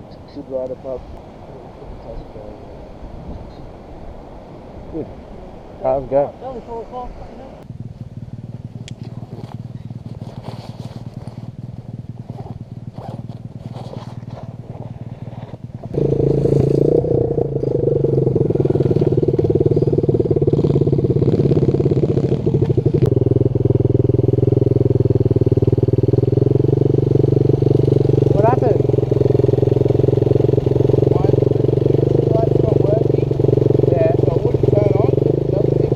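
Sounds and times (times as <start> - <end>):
pit bike engine running: 7.6 - 35.9.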